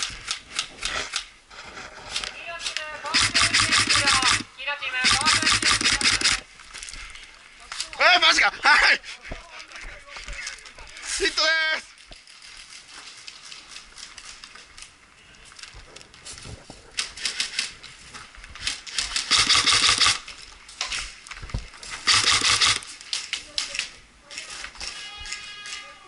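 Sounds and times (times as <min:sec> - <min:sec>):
airsoft gun shots: 0:03.1 - 0:04.4, 0:05.0 - 0:06.4, 0:19.2 - 0:20.2, 0:22.1 - 0:22.8.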